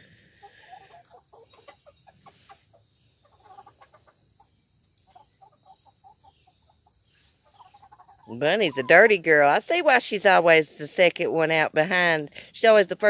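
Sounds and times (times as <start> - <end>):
chickens softly clucking: 0.0 - 9.2.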